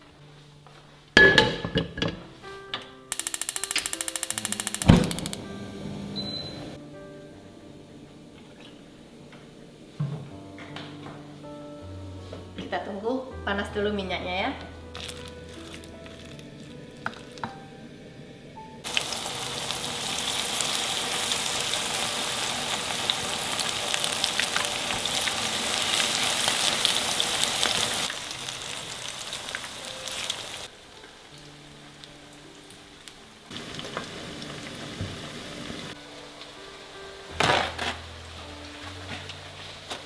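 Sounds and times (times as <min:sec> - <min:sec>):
batter sizzling in hot oil: 0:18.8 - 0:30.7, 0:33.5 - 0:38.5.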